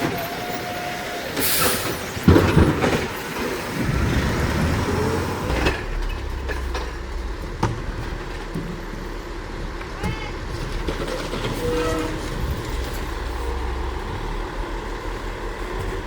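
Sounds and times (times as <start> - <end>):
garbage truck engine: 0.0 - 16.0
loud metallic bangs: 2.1 - 14.9
steady low drone: 3.7 - 16.0.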